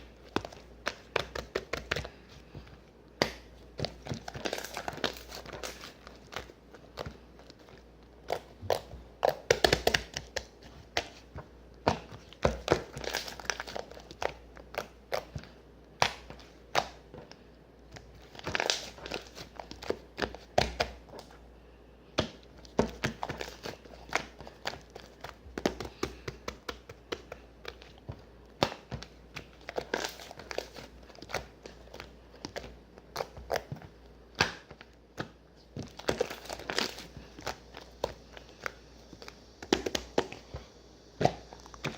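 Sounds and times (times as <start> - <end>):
plastic or paper crinkling: 3.8 - 8.5, 29.4 - 33.8, 35.8 - 39.4.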